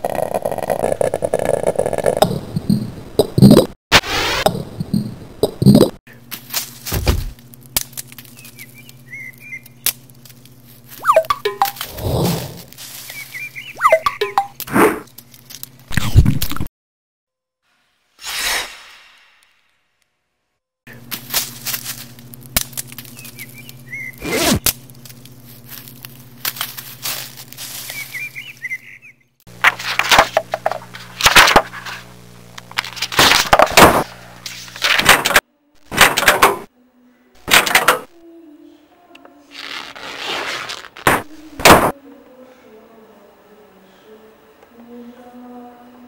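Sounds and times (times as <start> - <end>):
low hum: 20.9 - 34.8.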